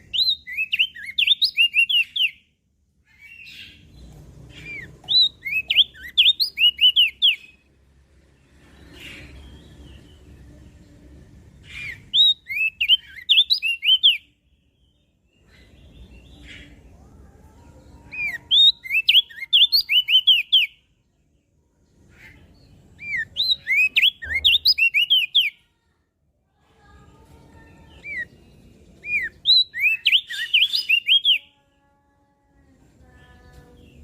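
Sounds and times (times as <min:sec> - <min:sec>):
bird singing whistled notes: 0:00.0 - 0:02.5, 0:04.6 - 0:07.7, 0:11.7 - 0:16.8, 0:18.0 - 0:20.8, 0:22.2 - 0:25.6, 0:27.9 - 0:31.6.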